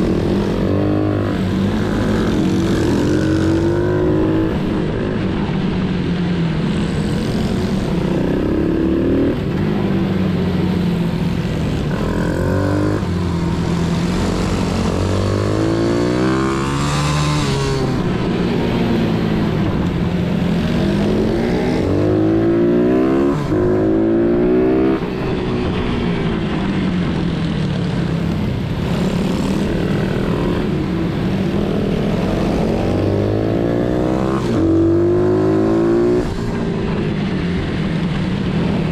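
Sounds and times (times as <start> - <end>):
pit bike engine revving: 6.7 - 25.2.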